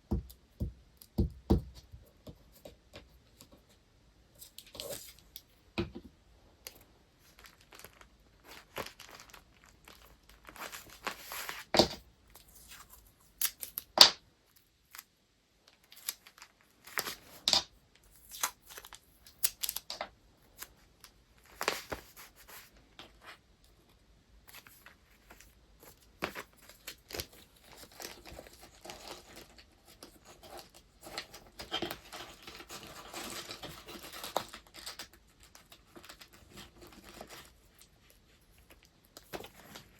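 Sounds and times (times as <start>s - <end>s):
paper crinkling and rustling: 6.6s - 13.9s, 15.7s - 39.9s.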